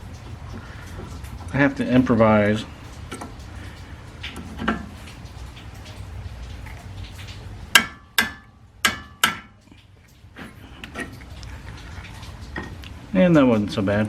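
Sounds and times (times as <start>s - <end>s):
metal hammer blows ringing: 7.8s - 9.5s.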